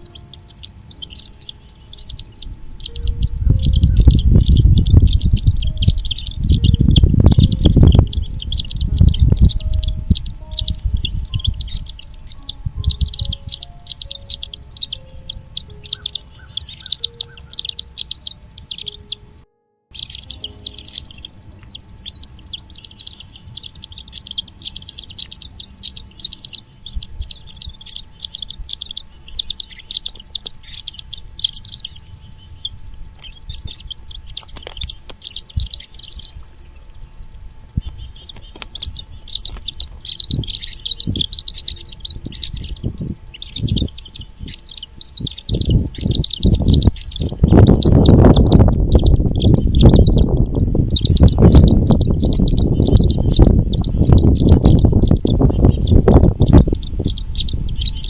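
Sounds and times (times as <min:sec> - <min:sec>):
low thumps and rumbles: 0:00.0 - 0:18.9, 0:20.1 - 0:58.0
birds chirping high-pitched: 0:00.0 - 0:58.0.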